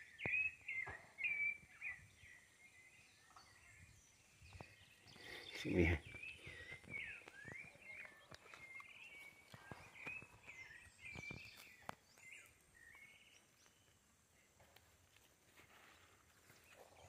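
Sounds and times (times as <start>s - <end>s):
footsteps in mud: 6.1s - 12.5s.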